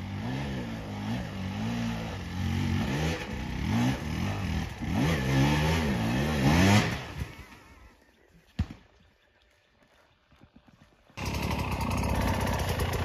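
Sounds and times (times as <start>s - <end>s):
dirt bike engine revving: 0.0s - 7.7s, 11.2s - 13.0s.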